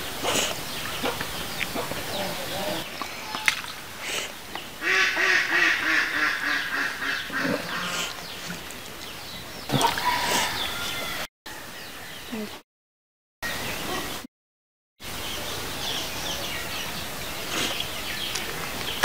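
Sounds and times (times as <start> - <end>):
fowl calling in a chorus: 4.8 - 8.1.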